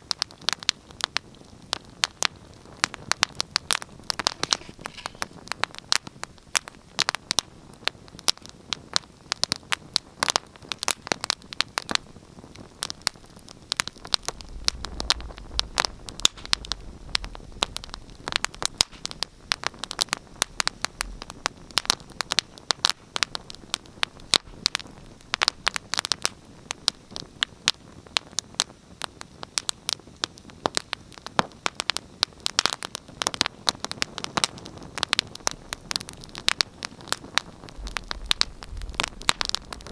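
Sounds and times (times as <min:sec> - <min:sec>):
wood fire crackling: 0:00.0 - 0:39.9
low rumble: 0:13.9 - 0:21.3, 0:37.7 - 0:39.9.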